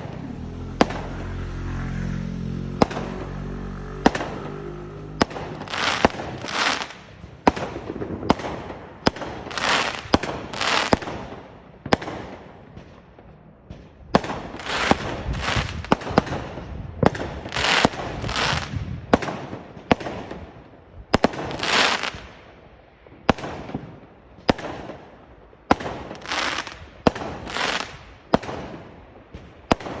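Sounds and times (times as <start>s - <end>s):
fireworks banging: 0.0s - 1.4s, 2.6s - 30.0s
fireworks hissing and crackling: 5.2s - 13.0s, 14.2s - 20.0s, 21.2s - 22.4s, 25.7s - 30.0s.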